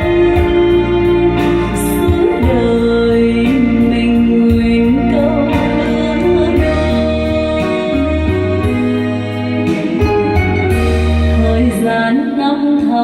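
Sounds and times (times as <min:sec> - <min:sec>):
instrumental accompaniment with beat: 0:00.0 - 0:12.4.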